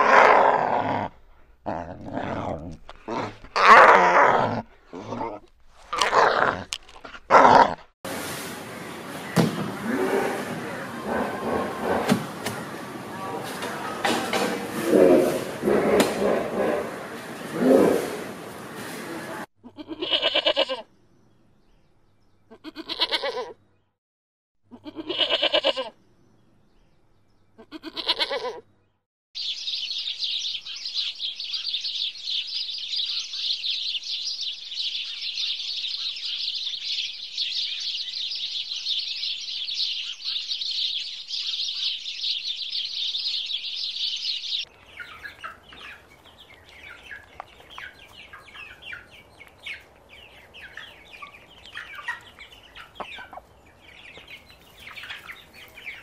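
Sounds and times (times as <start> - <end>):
livestock bleating: 19.6 - 20.9, 22.5 - 23.6, 24.7 - 25.9, 27.6 - 28.6.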